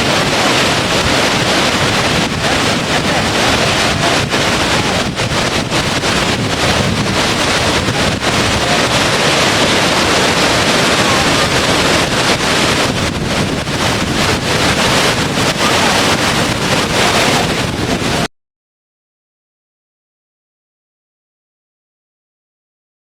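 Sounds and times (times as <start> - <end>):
rushing of falling water: 0.0 - 18.3.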